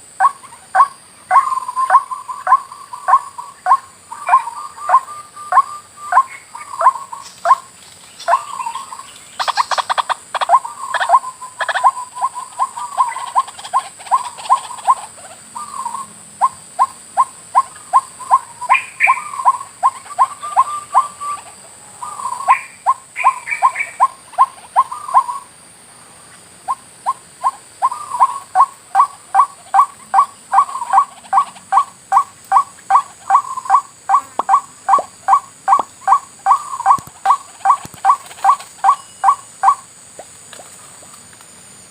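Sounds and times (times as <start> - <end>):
waterhen calling: 0.2 - 25.5, 26.6 - 39.9.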